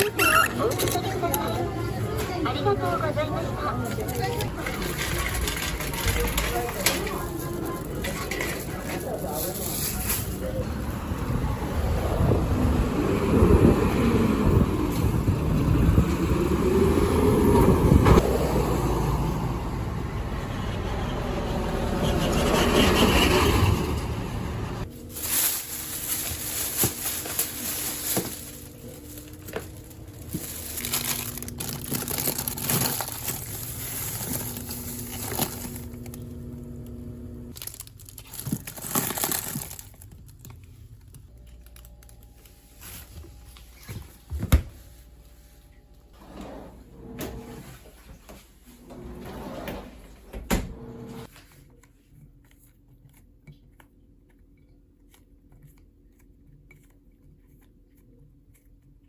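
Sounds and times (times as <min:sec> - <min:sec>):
rustling and crinkling: 0:00.0 - 0:10.7, 0:24.8 - 0:46.6.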